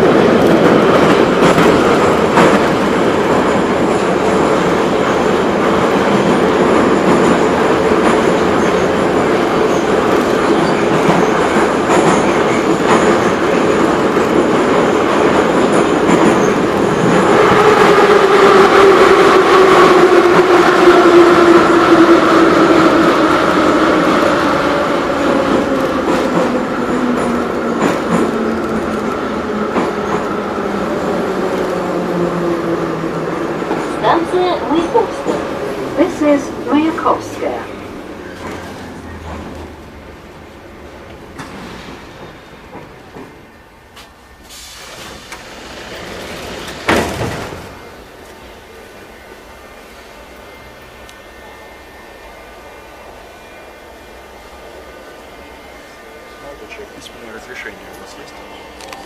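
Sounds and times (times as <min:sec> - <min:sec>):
train wheel and rail noise: 0:00.0 - 0:59.0.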